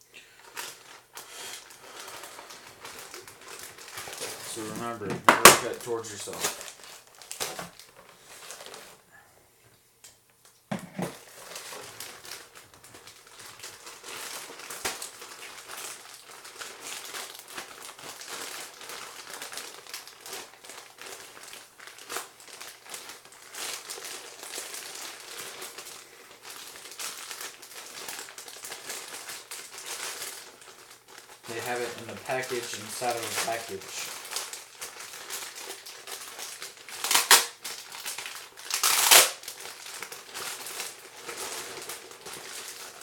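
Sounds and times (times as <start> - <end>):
packaging crinkling and rustling: 0.4 - 9.0, 10.4 - 43.0
knife cutting package open: 36.9 - 42.6.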